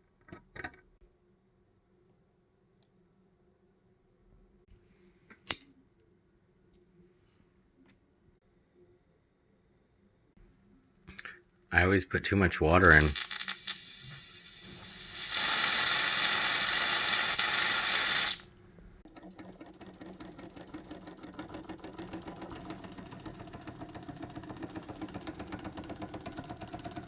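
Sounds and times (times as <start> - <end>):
toy steam engine ticking: 12.8 - 18.4, 19.1 - 27.0
steam hissing: 12.8 - 18.5.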